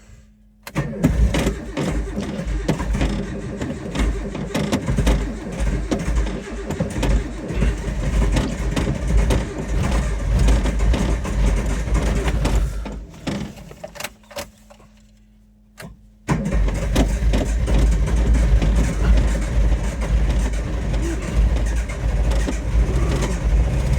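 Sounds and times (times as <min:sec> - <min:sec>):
car engine running rough: 0:00.6 - 0:14.0, 0:16.2 - 0:23.9.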